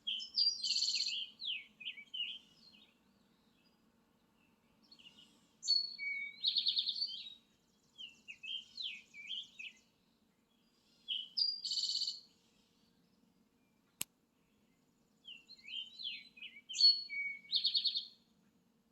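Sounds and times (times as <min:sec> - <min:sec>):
songbird singing trills: 0:00.0 - 0:03.8, 0:04.4 - 0:09.9, 0:10.5 - 0:12.3, 0:14.6 - 0:18.2.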